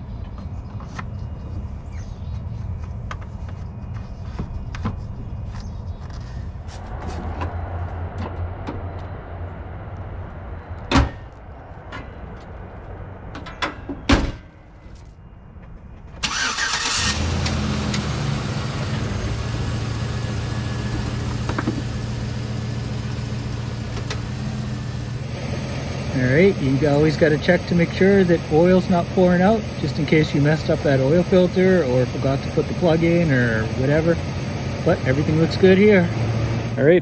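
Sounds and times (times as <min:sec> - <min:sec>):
truck engine starting and idling: 0:06.7 - 0:13.8, 0:16.1 - 0:37.0
hood slamming: 0:10.8 - 0:11.3.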